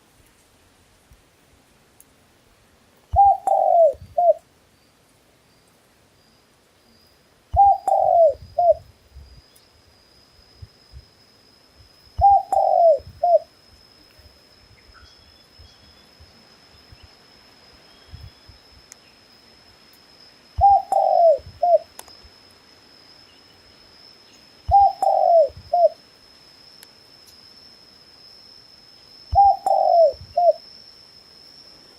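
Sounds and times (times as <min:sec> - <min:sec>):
dove cooing: 0:03.1 - 0:04.4, 0:07.5 - 0:08.8, 0:12.2 - 0:13.5, 0:20.6 - 0:21.9, 0:24.7 - 0:26.0, 0:29.3 - 0:30.6.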